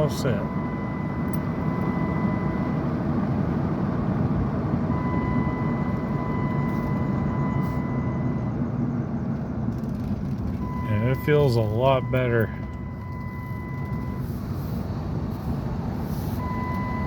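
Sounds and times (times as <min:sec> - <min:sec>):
car engine rumble: 0:00.0 - 0:17.0
road noise inside car: 0:00.0 - 0:17.0.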